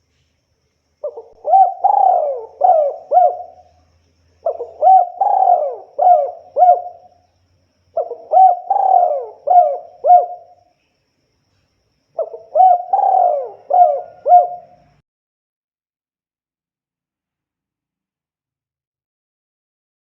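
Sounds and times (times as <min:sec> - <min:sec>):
dove cooing: 0:01.0 - 0:03.8, 0:04.4 - 0:07.2, 0:07.9 - 0:10.6, 0:12.2 - 0:15.0.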